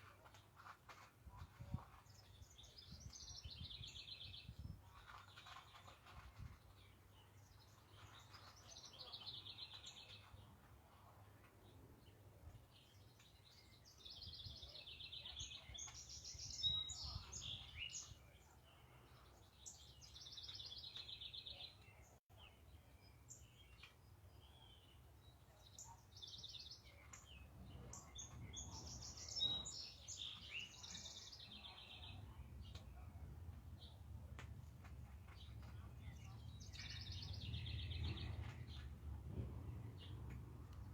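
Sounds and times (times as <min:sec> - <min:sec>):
songbirds trilling: 0:12.6 - 0:39.1
faint low rumble: 0:32.3 - 0:40.9.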